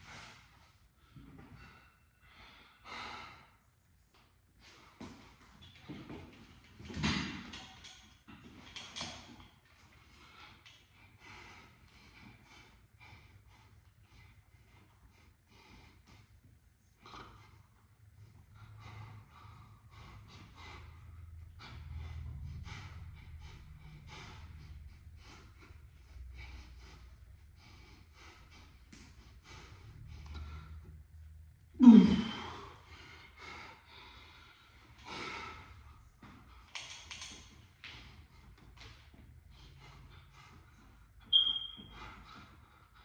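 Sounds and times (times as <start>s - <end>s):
steady low hum: 9.5s - 36.8s
man groaning exhale: 31.8s - 32.6s.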